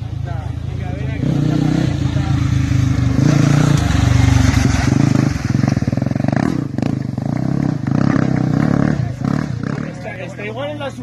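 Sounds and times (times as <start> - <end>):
motorcycle engines passing: 0.0 - 11.0.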